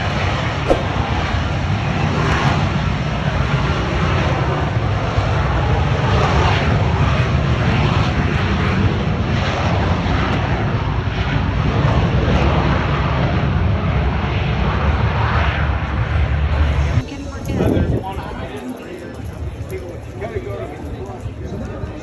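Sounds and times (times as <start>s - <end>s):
aircraft engine roaring: 0.7s - 17.0s.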